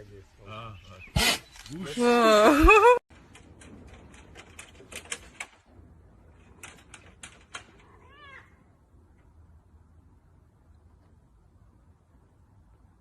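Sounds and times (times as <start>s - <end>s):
cat meowing: 7.9s - 8.6s.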